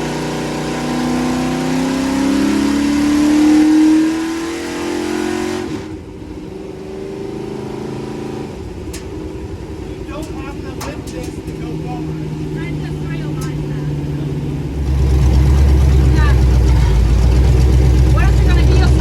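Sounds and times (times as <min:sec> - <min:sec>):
truck engine revving: 0:00.0 - 0:19.0
spinning tyres hissing: 0:08.0 - 0:19.0
engine loping idle: 0:08.6 - 0:19.0.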